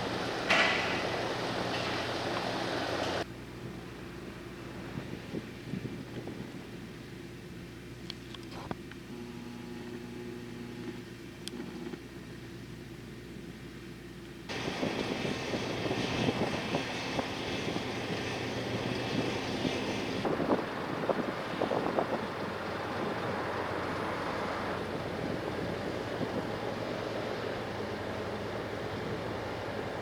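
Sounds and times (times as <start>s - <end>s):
wind buffeting microphone: 4.7s - 7.0s, 14.5s - 27.7s
sea waves: 19.6s - 30.0s.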